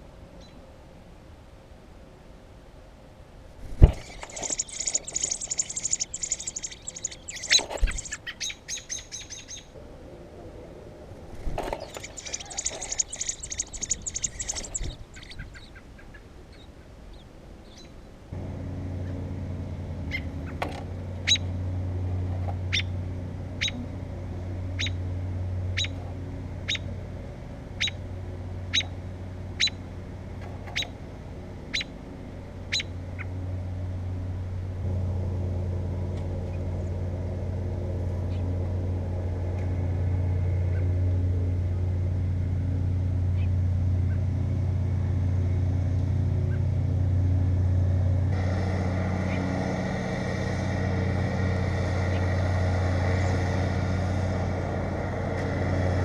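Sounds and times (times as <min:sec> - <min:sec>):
steady low hum: 0:03.2 - 0:17.2, 0:18.0 - 0:56.0
nestling birds chirping: 0:03.6 - 0:09.7, 0:11.2 - 0:18.0, 0:48.4 - 0:56.0.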